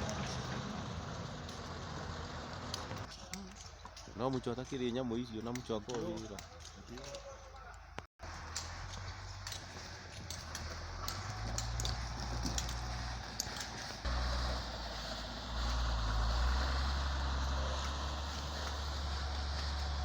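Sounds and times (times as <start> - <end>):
diesel machinery engine rumbling: 0.0 - 3.1, 8.2 - 20.0.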